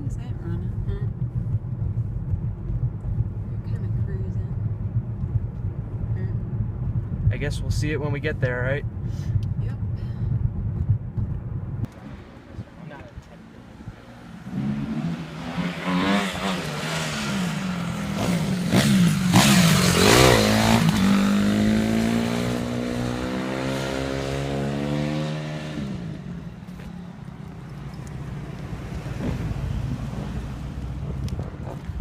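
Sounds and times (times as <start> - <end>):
engine revving: 11.8 - 26.9, 27.7 - 32.0.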